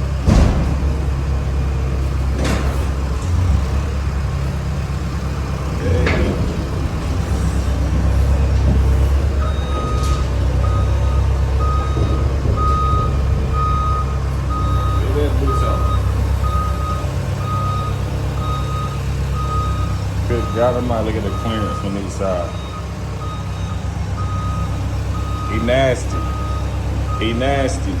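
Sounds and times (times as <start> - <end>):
truck engine running: 0.0 - 28.0
backup alarm beeping: 5.6 - 27.9.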